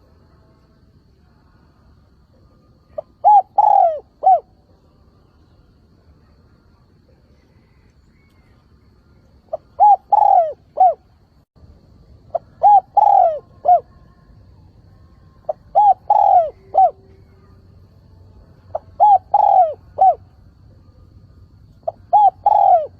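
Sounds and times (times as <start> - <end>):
spotted dove cooing: 2.8 - 4.5, 9.5 - 11.1, 12.3 - 14.3, 15.4 - 17.6, 18.7 - 21.1, 21.8 - 22.9.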